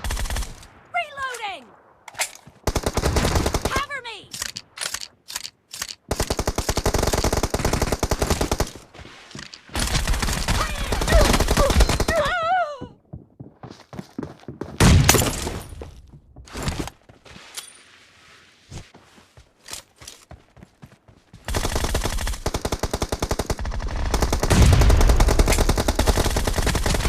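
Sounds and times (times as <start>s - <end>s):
video game automatic gunfire: 6.1s - 8.8s, 21.5s - 27.0s.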